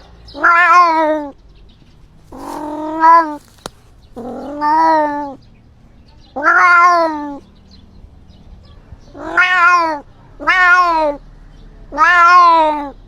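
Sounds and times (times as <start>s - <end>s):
cat meowing: 0.4s - 1.3s, 2.3s - 3.6s, 4.2s - 5.4s, 6.4s - 7.4s, 9.1s - 11.2s, 12.0s - 13.0s.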